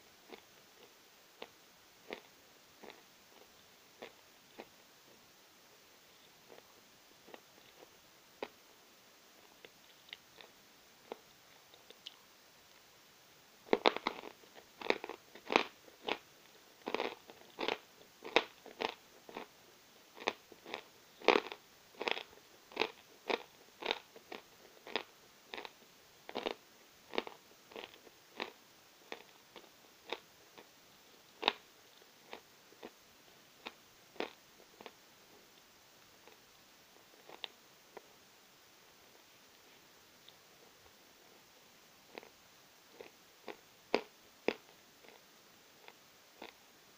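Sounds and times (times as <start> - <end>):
chalk crunching being chewed: 13.7 - 16.2, 16.8 - 19.5, 20.2 - 30.7, 37.1 - 38.1, 42.1 - 42.3.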